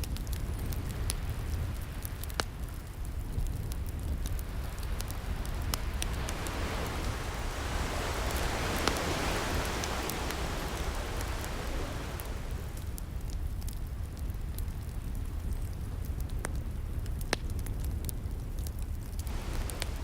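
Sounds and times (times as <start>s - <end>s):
wood fire crackling: 0.0s - 20.0s
ocean waves and surf: 4.3s - 13.3s, 19.2s - 20.0s.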